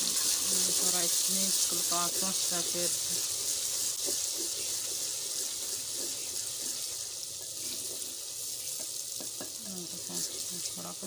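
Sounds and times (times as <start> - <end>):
onions sizzling in fat: 0.0 - 11.0
wooden spoon scraping pot: 3.2 - 8.2.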